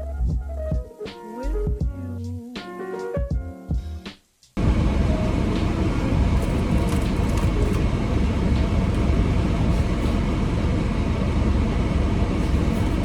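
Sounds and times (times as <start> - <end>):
low rumbling noise: 4.6 - 13.0.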